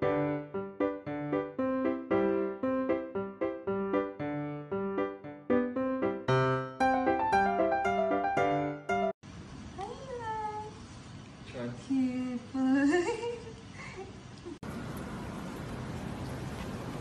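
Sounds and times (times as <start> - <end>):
piano music: 0.0 - 9.2.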